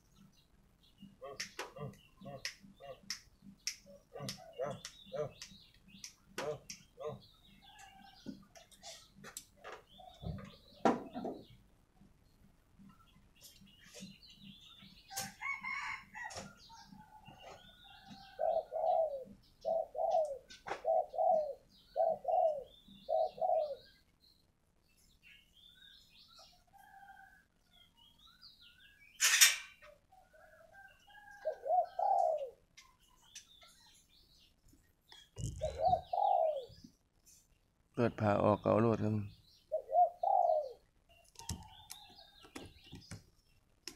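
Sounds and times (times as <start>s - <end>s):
small birds chirping: 0.0s - 43.9s
dove cooing: 1.2s - 3.2s, 3.9s - 5.4s, 15.1s - 24.0s, 30.1s - 32.8s, 35.3s - 36.9s, 39.6s - 42.3s.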